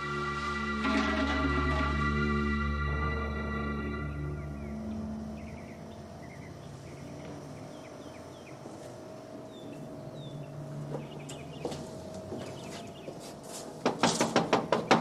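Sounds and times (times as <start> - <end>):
faint steady hum: 0.0 - 13.9
small birds chirping: 4.3 - 13.4.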